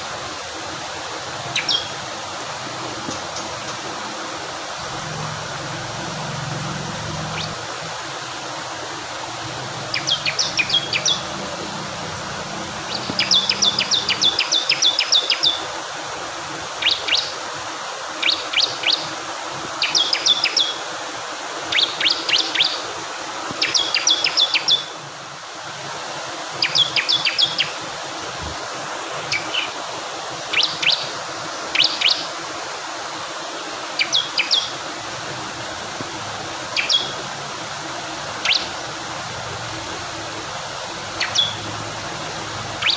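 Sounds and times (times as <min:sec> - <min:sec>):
rushing water: 0:00.0 - 0:42.9
bird singing sharp high notes: 0:12.9 - 0:15.0, 0:41.2 - 0:41.6.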